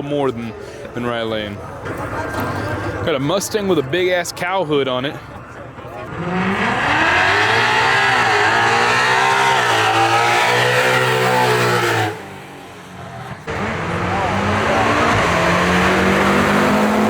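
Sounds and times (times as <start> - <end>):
drag car accelerating: 6.0 - 17.0
loud engine: 6.0 - 17.0.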